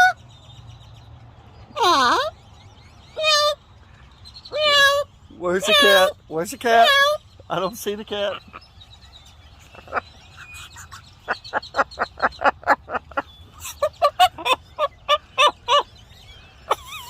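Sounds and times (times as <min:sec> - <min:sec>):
parrot laugh-like calls: 0:04.5 - 0:06.2, 0:09.5 - 0:15.9, 0:16.6 - 0:17.0.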